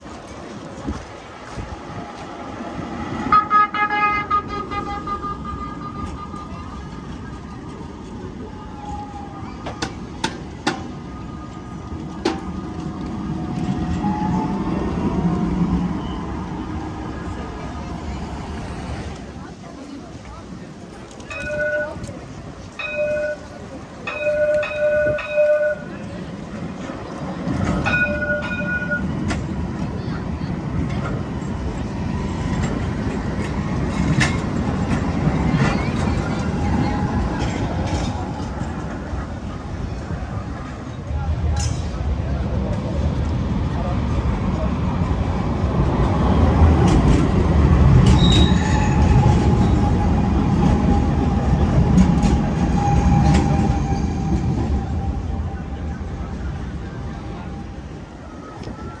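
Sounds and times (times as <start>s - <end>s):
tram rumbling on rails: 0.0s - 59.0s
tram warning bell: 3.1s - 8.5s, 20.9s - 39.8s, 44.6s - 59.0s
wheels clicking on track: 9.6s - 59.0s.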